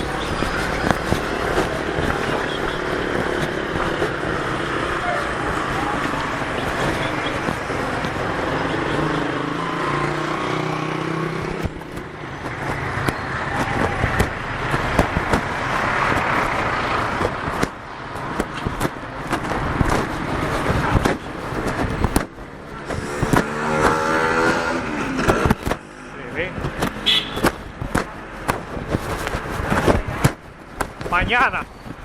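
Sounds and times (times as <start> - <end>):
cars passing: 0.0 - 32.0
sharp clicks and knocks: 11.4 - 32.0.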